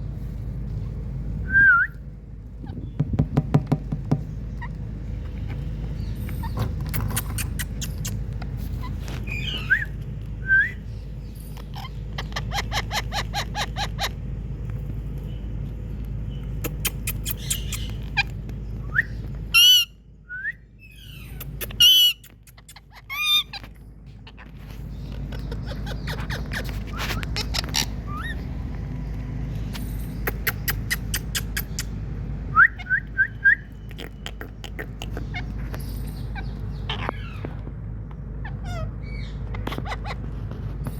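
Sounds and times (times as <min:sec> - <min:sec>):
steady low hum: 0:00.0 - 0:40.9
parrot chirps and clicks: 0:06.2 - 0:08.6, 0:15.9 - 0:19.9, 0:21.0 - 0:28.4, 0:29.5 - 0:40.9
parrot squawking: 0:06.4 - 0:08.2, 0:11.7 - 0:14.2, 0:16.6 - 0:18.4, 0:19.5 - 0:20.0, 0:21.0 - 0:24.5, 0:25.2 - 0:28.4, 0:30.2 - 0:32.0, 0:33.8 - 0:37.6, 0:38.4 - 0:40.4.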